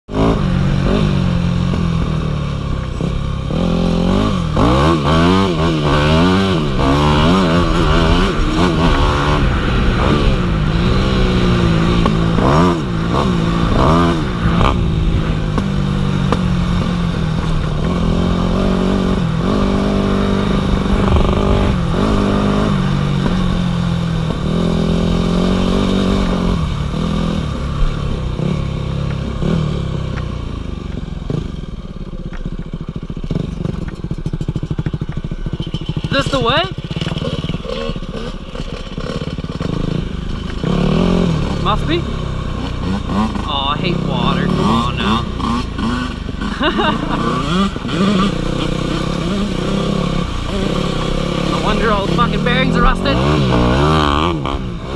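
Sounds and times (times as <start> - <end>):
dirt bike engine revving: 0.1 - 54.9.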